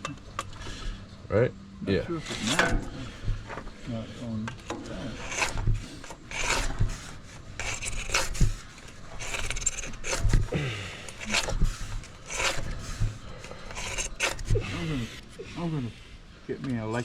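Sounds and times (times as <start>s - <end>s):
hand file rasping on steel: 2.3s - 15.2s.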